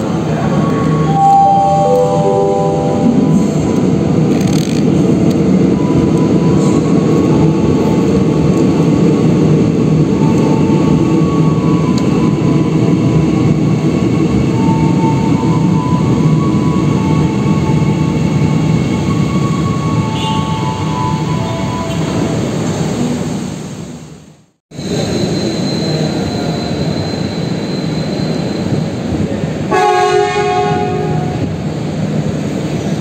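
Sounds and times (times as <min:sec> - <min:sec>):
train wheels rumbling: 0:00.0 - 0:23.4.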